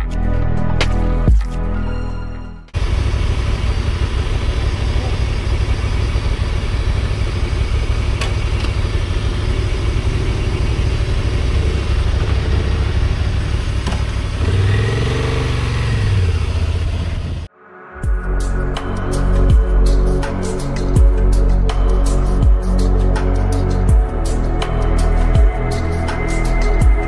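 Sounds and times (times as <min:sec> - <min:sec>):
motorcycle engine revving: 0:02.8 - 0:17.5.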